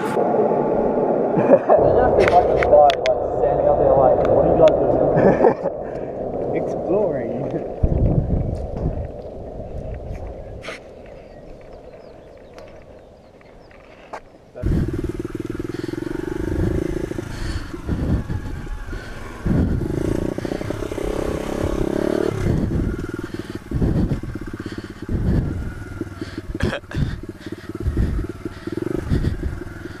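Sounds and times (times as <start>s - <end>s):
pit bike engine revving: 14.6s - 30.0s.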